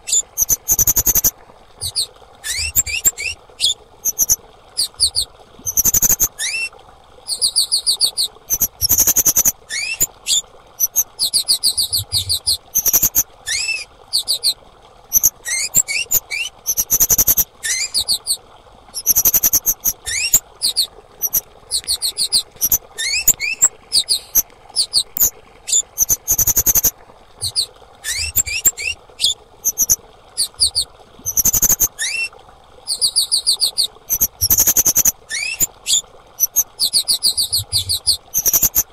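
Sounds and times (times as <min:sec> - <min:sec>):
bird chirping: 0:19.0 - 0:32.2.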